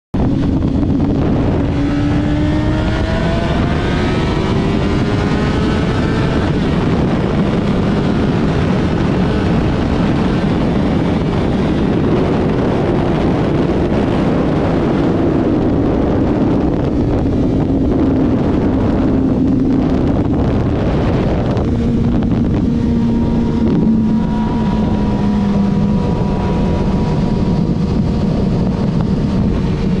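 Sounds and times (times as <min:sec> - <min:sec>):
wind rush on microphone: 0:00.1 - 0:30.0
motorcycle engine accelerating: 0:00.2 - 0:30.0.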